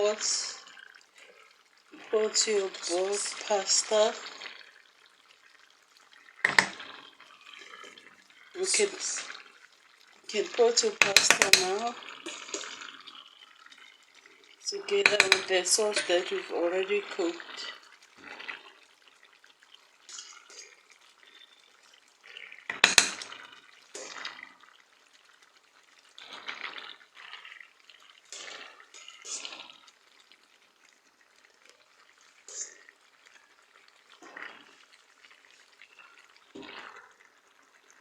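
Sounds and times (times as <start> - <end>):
pasta sloshing in sauce: 0.0 - 38.0
utensil clanking against pot: 6.4 - 6.8, 10.8 - 12.4, 14.8 - 16.3, 22.7 - 23.4.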